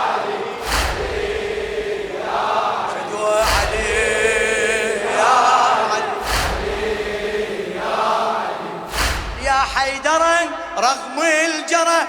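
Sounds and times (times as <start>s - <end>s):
collective chest-beats: 0.0s - 11.1s
crowd chanting in unison: 0.0s - 12.0s.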